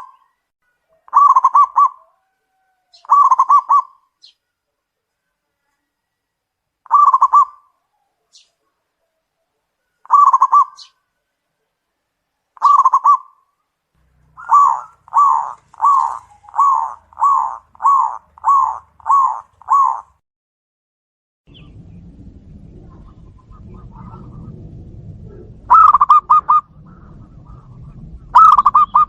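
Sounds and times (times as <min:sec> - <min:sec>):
dove cooing: 0:00.9 - 0:04.0, 0:06.8 - 0:08.4, 0:09.8 - 0:11.0, 0:12.6 - 0:13.4, 0:14.3 - 0:20.2, 0:22.8 - 0:24.6, 0:25.3 - 0:29.0.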